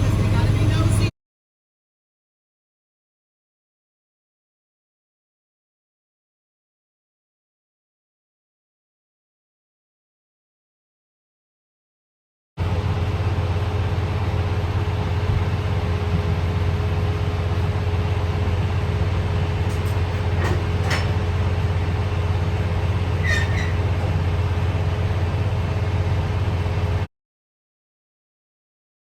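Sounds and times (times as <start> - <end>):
diesel truck engine rumbling: 0.0 - 1.1, 12.6 - 27.1
steady hum in cab: 0.0 - 1.1, 12.6 - 27.1.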